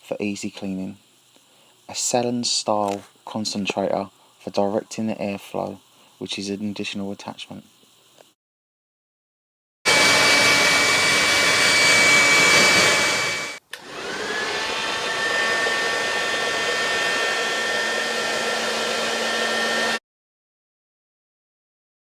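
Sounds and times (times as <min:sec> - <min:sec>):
hair dryer running: 0:09.9 - 0:20.0.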